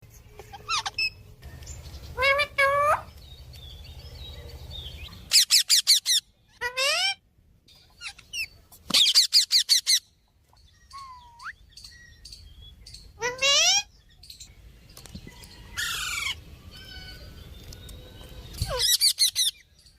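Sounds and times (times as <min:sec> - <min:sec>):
parrot whistles and squawks: 0:00.5 - 0:01.2, 0:05.3 - 0:07.2, 0:10.8 - 0:11.6, 0:18.5 - 0:19.6
parrot sharp rising chirps: 0:05.1 - 0:06.3, 0:10.8 - 0:12.5.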